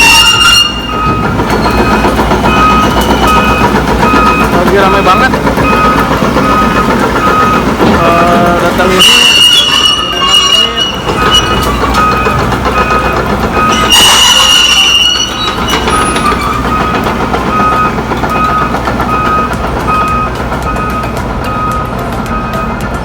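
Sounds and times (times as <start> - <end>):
reversing alarm beeping: 0.0 - 22.9
diesel engines running: 0.0 - 23.0
loud hiss with a squeal: 8.8 - 11.8, 13.7 - 16.6.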